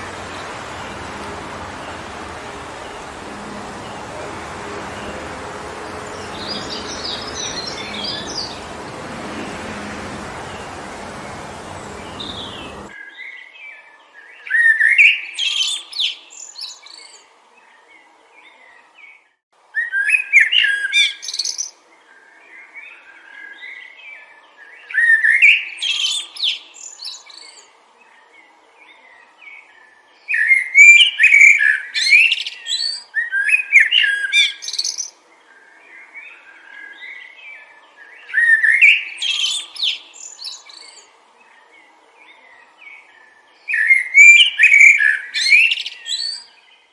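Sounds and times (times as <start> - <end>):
songbird warbling: 0.0 - 12.9.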